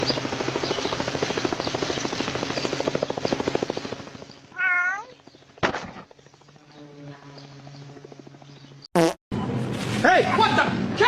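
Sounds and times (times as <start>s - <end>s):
cat meowing: 4.6s - 5.1s.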